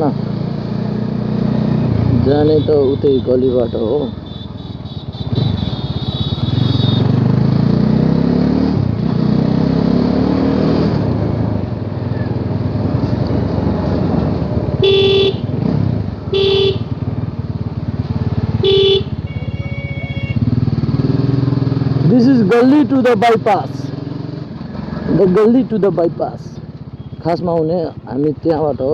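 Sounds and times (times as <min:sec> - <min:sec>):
motorcycle engine accelerating: 0:00.0 - 0:28.9
vehicle horn beeps: 0:02.4 - 0:07.2, 0:14.8 - 0:15.5, 0:16.3 - 0:17.0, 0:18.6 - 0:20.5, 0:26.9 - 0:27.3.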